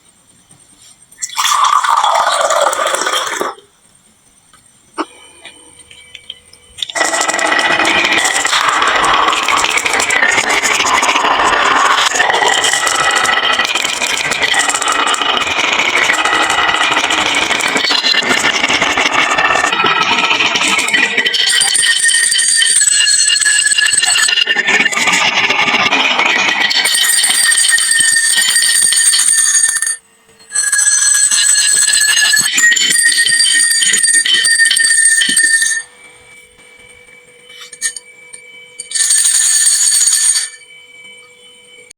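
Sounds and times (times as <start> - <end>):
ringing tones: 5.0 - 41.9
marbles rattling down wooden run: 6.9 - 28.6.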